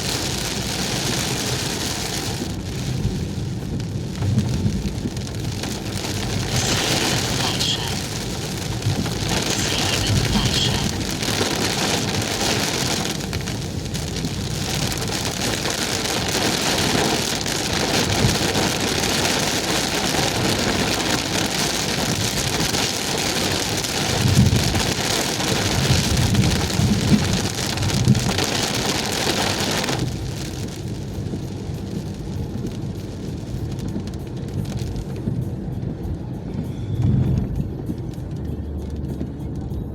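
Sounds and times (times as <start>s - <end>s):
heavy rain on a car: 0.0s - 39.9s
low thuds: 3.1s - 6.5s, 35.1s - 39.8s.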